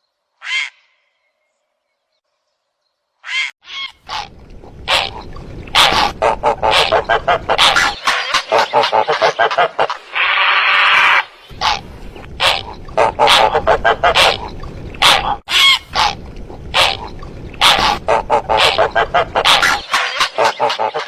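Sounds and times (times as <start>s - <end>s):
recorded heron squawks: 0.4s - 1.0s, 3.2s - 21.0s
low steady hum: 4.1s - 7.9s, 11.5s - 19.9s.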